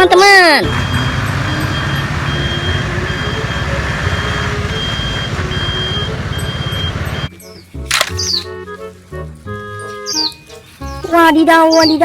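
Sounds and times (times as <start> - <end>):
toy engine rumble: 0.6 - 7.3
high reversing beep: 0.7 - 7.3.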